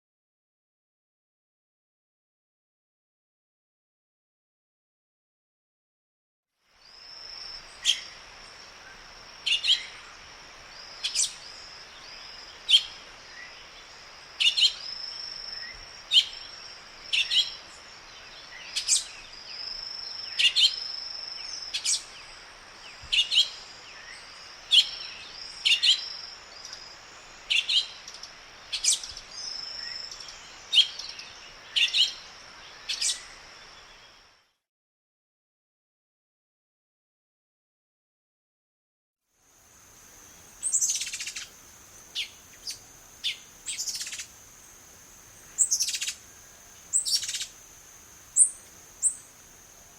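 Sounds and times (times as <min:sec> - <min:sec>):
bird sharp chirps: 0:40.6 - 0:41.5, 0:42.1 - 0:44.3, 0:45.5 - 0:46.2, 0:46.9 - 0:47.6.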